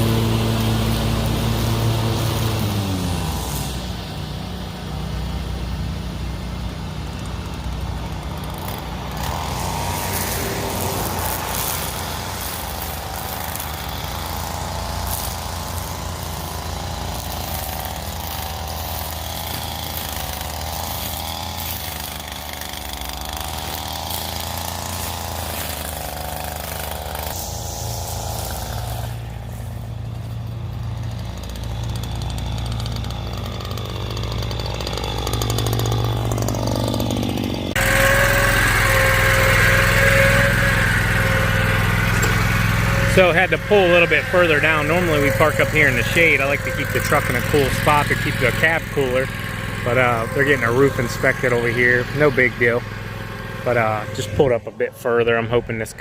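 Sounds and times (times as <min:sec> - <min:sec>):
riding lawn mower engine running: 0:00.0 - 0:56.0
wavering high whine: 0:08.4 - 0:31.2, 0:37.7 - 0:56.0.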